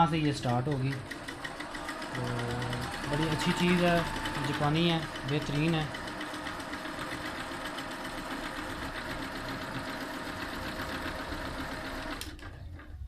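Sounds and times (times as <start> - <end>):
sewing machine stitching: 0.0 - 13.0.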